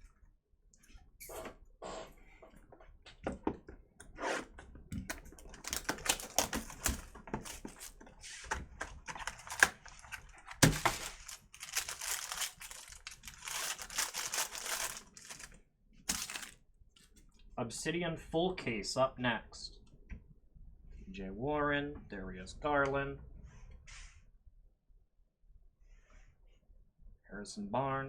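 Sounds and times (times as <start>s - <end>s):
cards clicking and tapping: 5.0s - 8.0s, 8.6s - 15.5s
packaging rustling and tearing: 5.0s - 16.6s.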